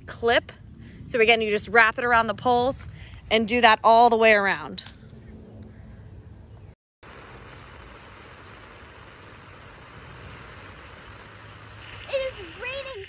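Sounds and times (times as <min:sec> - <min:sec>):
rain hissing: 0:07.0 - 0:13.0.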